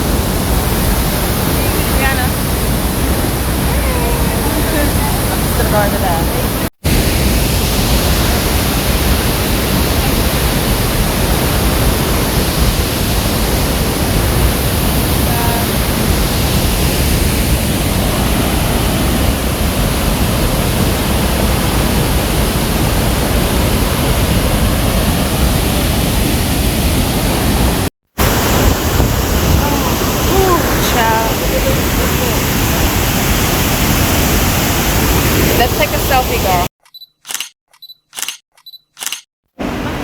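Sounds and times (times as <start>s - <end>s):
waterfall roaring: 0.0s - 36.7s, 39.6s - 40.0s.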